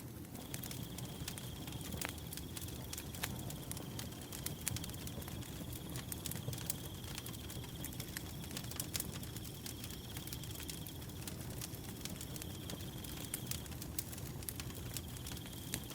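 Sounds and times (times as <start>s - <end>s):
wood fire crackling and popping: 0.0s - 15.9s
cricket trilling: 0.4s - 11.0s.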